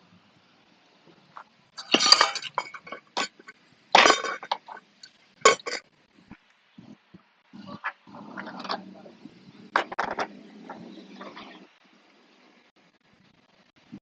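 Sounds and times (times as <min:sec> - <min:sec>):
metal hand tools clinking: 0:01.8 - 0:04.8, 0:05.5 - 0:05.8.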